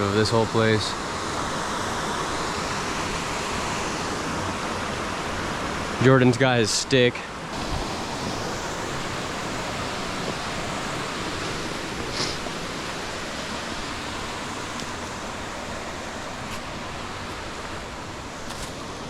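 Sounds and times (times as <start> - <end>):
river water rushing over rocks: 7.5 - 19.0.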